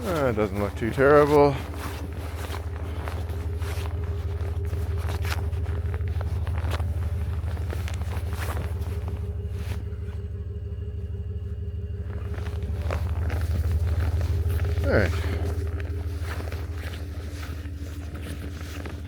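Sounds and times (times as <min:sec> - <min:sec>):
footsteps crunching in snow: 0:00.0 - 0:19.0
vehicle engine idling: 0:00.0 - 0:19.0.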